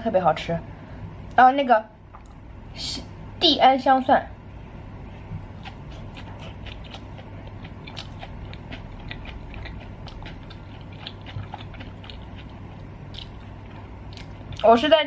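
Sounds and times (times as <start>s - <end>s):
person chewing with mouth clicks: 5.3s - 14.7s.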